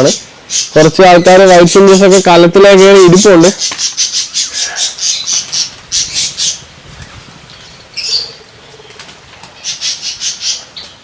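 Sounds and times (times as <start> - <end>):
birds flapping wings: 5.1 - 11.0.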